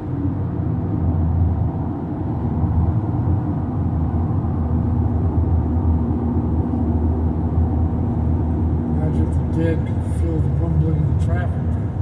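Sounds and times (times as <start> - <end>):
car engine running: 0.0 - 12.0
tyre and road noise: 0.0 - 12.0.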